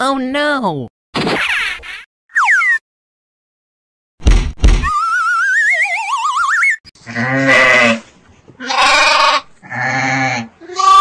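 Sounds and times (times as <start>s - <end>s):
sheep bleating: 7.0s - 11.0s.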